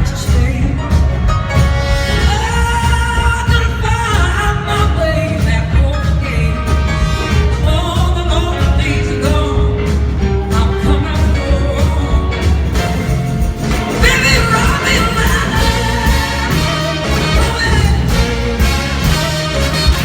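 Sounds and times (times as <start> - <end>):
blues-rock band playing: 0.0 - 20.0.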